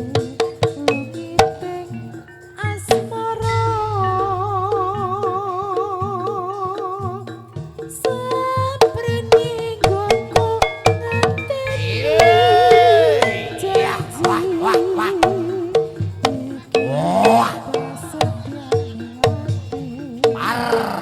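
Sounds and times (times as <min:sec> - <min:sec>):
steady drumming: 0:02.8 - 0:21.0
sharp struck percussion: 0:09.4 - 0:20.2
wavering held melody note: 0:10.7 - 0:18.5.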